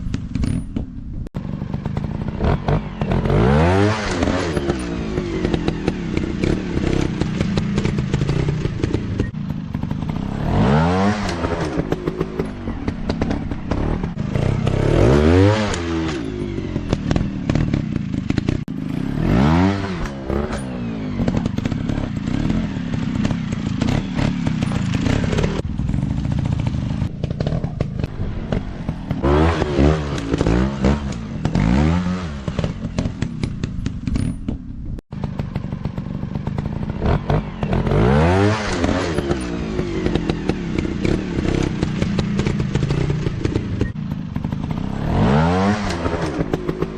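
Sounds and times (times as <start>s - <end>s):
knocks and rattles: 0.0s - 2.8s, 20.0s - 37.8s
dirt bike engine revving: 1.4s - 34.4s, 35.1s - 46.9s.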